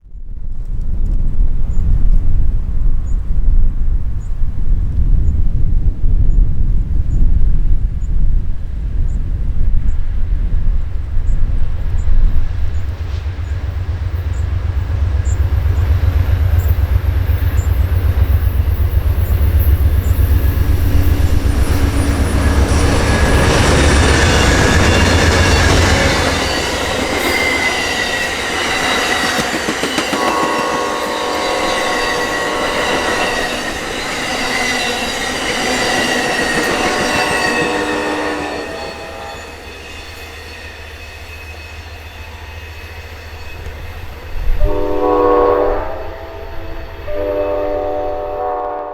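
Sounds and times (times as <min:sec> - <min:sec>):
diesel locomotive engine rumble: 0:00.2 - 0:48.9
train wheel squeal: 0:11.3 - 0:48.4
wheels clicking over rail joints: 0:22.2 - 0:30.8.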